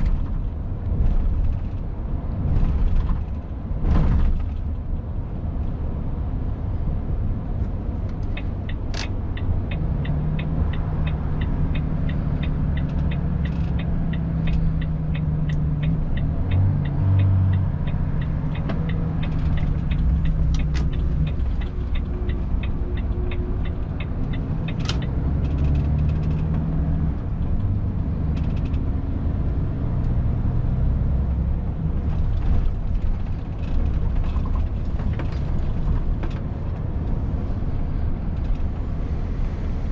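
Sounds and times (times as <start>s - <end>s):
road noise: 0.0s - 39.9s
truck diesel engine rumble: 0.0s - 39.9s
turn indicator ticking: 8.0s - 30.8s.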